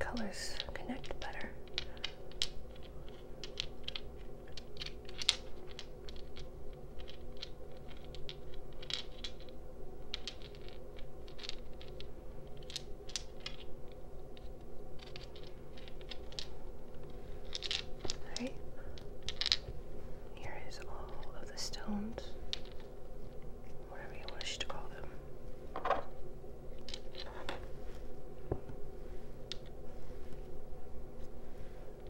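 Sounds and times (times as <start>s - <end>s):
stones clicking and tapping: 0.1s - 19.8s, 20.4s - 23.5s, 26.8s - 27.6s, 29.4s - 29.7s.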